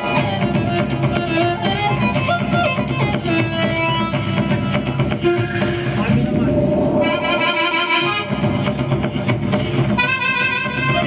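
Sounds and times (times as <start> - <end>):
steady beat: 0.1 - 10.0
violin melody: 7.0 - 8.5.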